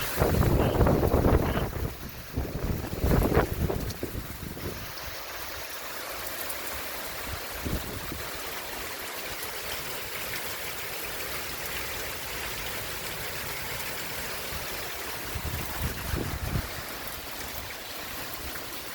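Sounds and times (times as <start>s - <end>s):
wind gusts on microphone: 0.0s - 5.5s, 7.2s - 8.3s, 15.2s - 18.6s
heavy rain: 0.0s - 18.9s.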